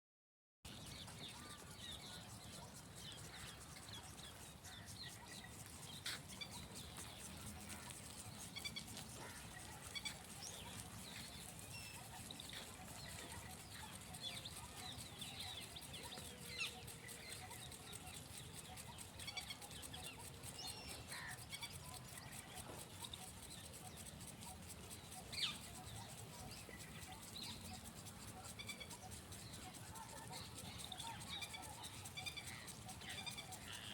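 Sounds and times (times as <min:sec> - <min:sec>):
small birds chirping: 0:00.7 - 0:33.9.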